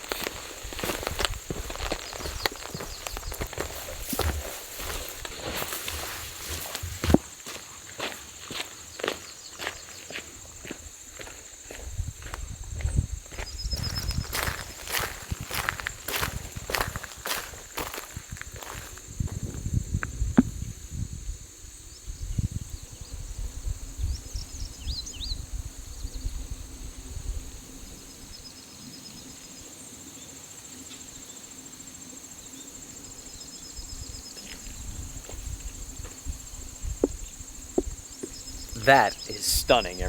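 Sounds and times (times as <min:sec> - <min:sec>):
wind rumbling on microphone: 0:00.0 - 0:07.2, 0:11.6 - 0:28.2, 0:33.8 - 0:38.8
insects trilling: 0:00.0 - 0:40.0.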